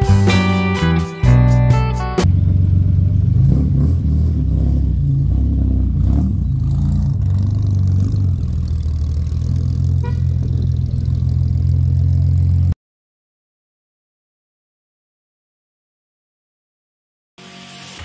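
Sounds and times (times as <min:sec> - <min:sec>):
pickup engine idling: 0:05.8 - 0:12.6.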